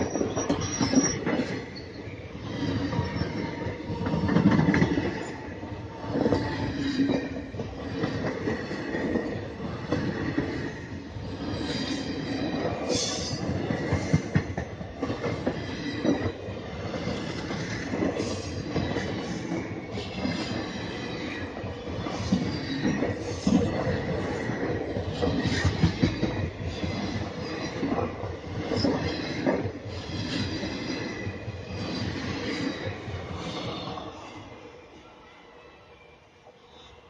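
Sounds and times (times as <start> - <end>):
high wheel squeal: 0.0 - 3.6
train wheels rumbling and rattling: 0.0 - 34.3.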